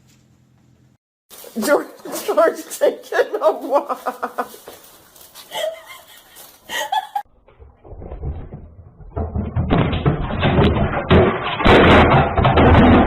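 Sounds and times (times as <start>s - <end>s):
irregular thumps and knocks: 7.4s - 13.0s.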